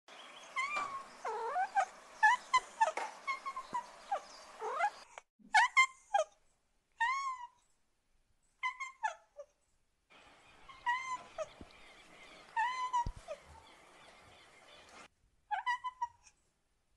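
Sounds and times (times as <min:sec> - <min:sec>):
cat meowing: 0:10.7 - 0:11.5.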